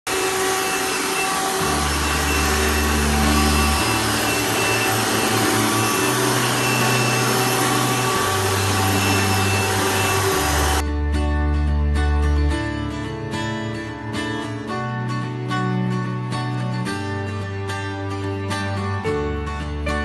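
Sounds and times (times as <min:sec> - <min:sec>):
loud rushing noise: 0:00.1 - 0:10.8
background music: 0:01.4 - 0:20.0.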